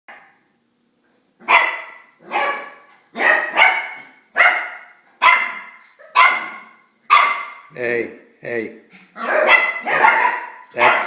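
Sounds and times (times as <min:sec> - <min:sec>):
puppies barking: 0:01.4 - 0:07.7, 0:08.9 - 0:11.0.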